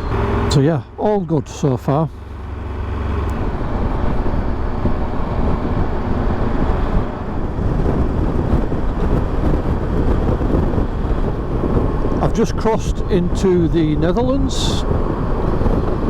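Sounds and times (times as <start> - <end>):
motorcycle engine: 0.0 - 12.2
road noise: 0.0 - 16.0
wind buffeting microphone: 0.0 - 16.0.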